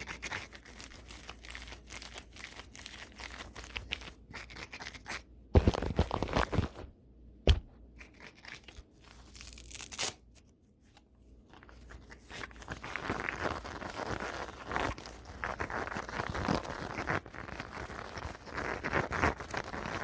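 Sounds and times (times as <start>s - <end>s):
brush scratching across microphone: 11.9s - 20.0s.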